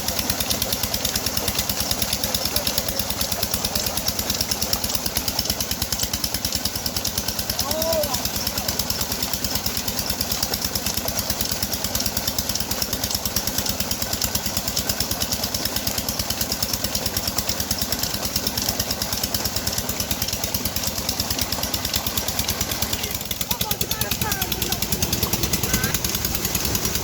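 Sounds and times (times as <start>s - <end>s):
diesel engine chugging: 0.0s - 27.0s.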